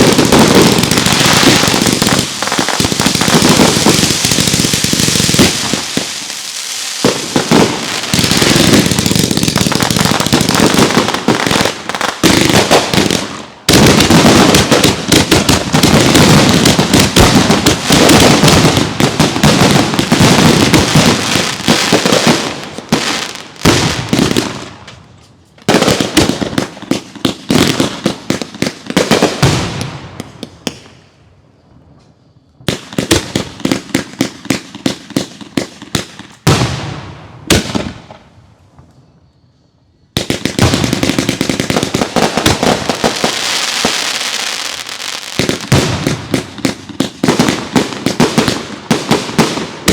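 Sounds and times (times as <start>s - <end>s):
fireworks crackling and banging: 0.0s - 31.0s, 32.6s - 39.0s, 40.2s - 49.9s.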